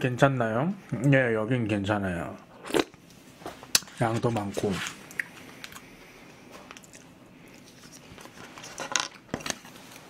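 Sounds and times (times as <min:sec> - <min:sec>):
man chewing food: 0:04.9 - 0:08.7.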